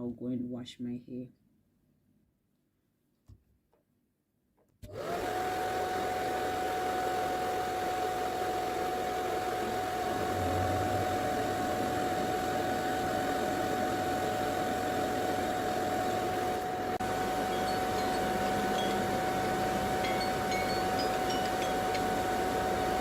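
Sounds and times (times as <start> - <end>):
hair dryer whirring: 4.9 - 23.0.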